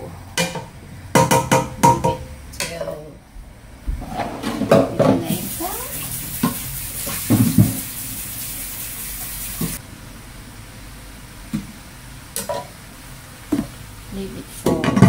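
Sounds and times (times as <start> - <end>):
food sizzling in a pot: 5.2 - 9.8.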